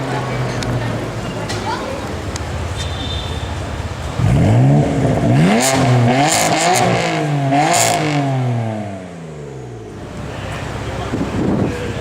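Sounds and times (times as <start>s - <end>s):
car engine revving hard: 3.8s - 11.9s.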